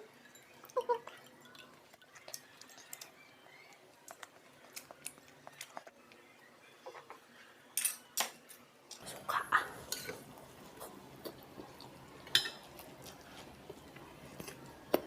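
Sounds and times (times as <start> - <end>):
quiet chewing: 0.6 - 7.2, 9.0 - 12.0, 12.6 - 15.0.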